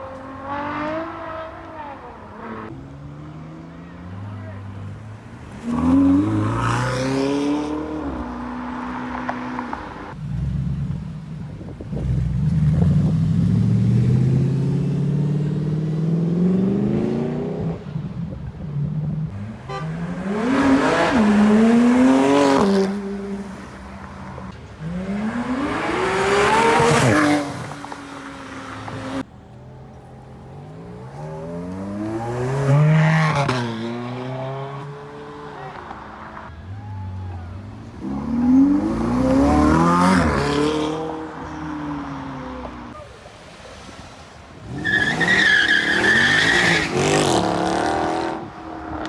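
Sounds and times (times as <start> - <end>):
sports car engines revving: 0.0 - 49.0.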